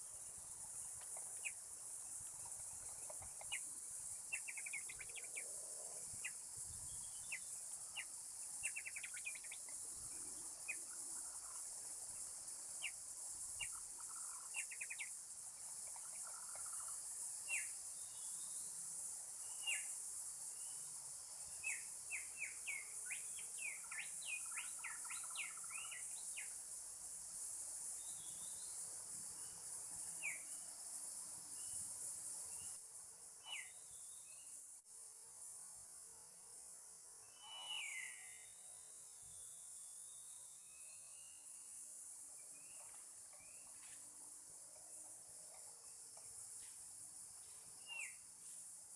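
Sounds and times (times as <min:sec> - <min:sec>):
insects buzzing: 0:00.0 - 0:48.9
bird chirps: 0:04.3 - 0:05.5, 0:07.1 - 0:09.8, 0:33.4 - 0:33.8.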